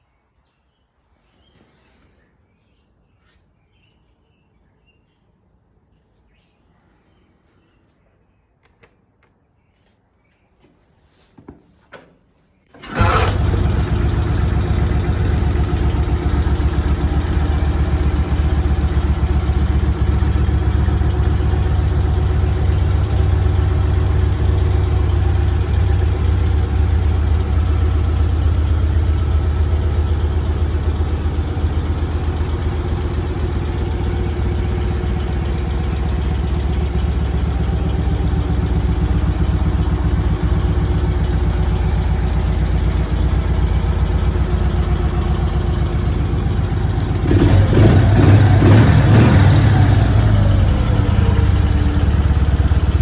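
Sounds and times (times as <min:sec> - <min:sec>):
motorcycle engine starting and idling: 0:12.0 - 0:53.0.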